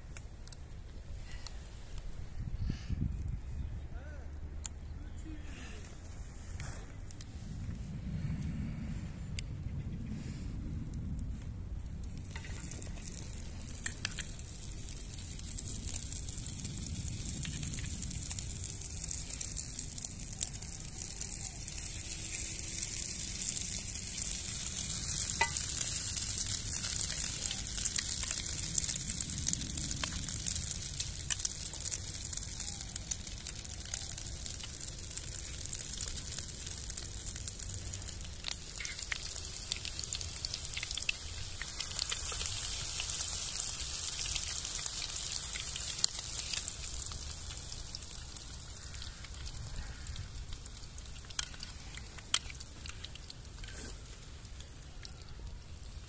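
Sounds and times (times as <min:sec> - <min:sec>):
food sizzling in a pan: 0:12.3 - 0:50.1.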